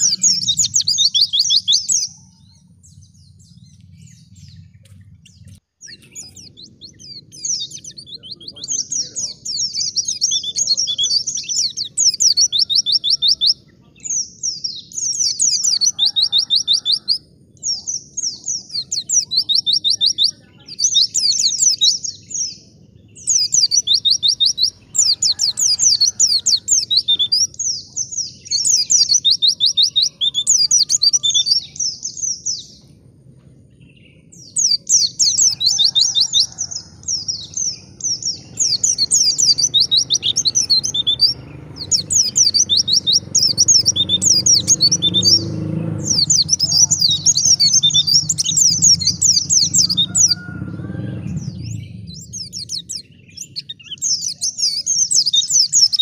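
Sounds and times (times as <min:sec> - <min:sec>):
white-eye bird twittering: 0:00.0 - 0:33.0, 0:34.4 - 0:56.0
low background rumble: 0:00.0 - 0:55.9.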